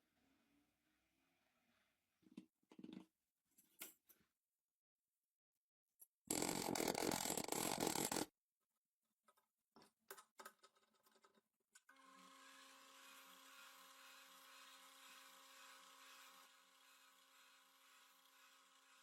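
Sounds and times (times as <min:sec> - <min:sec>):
small electric motor humming: 0:11.9 - 0:19.0.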